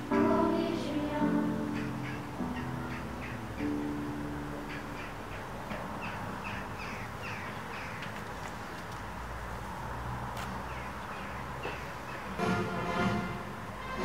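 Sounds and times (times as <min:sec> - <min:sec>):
birds calling: 0:01.4 - 0:08.8, 0:10.5 - 0:12.4.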